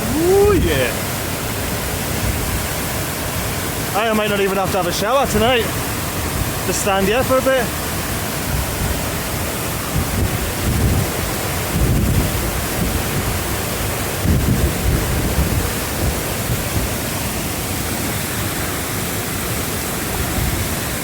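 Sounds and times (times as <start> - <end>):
wind buffeting microphone: 0.0 - 3.6, 7.8 - 17.2
waterfall rushing: 0.0 - 21.0.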